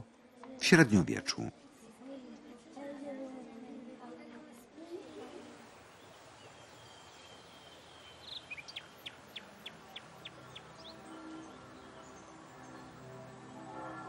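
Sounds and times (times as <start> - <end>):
small bird chirping: 6.0 - 12.3.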